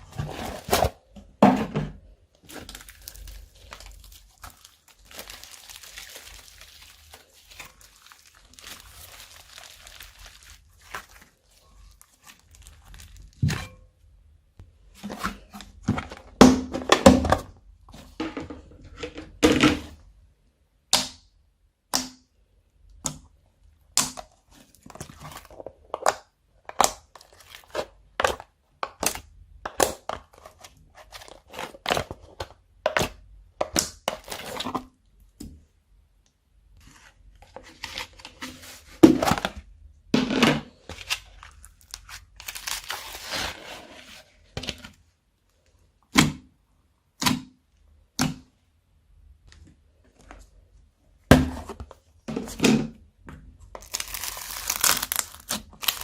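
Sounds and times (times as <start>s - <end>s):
slime squishing: 2.3s - 13.8s.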